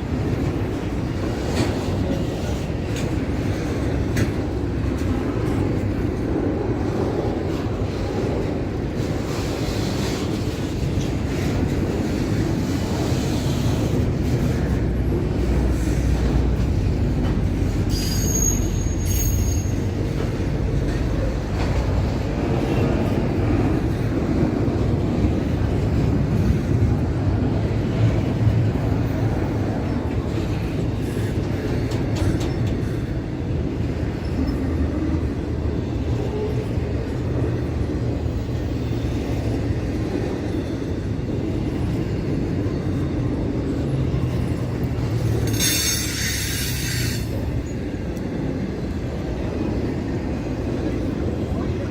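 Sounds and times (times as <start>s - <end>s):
train wheels rumbling on rail: 0.0s - 51.9s
high wheel squeal: 17.9s - 20.0s, 45.4s - 47.8s.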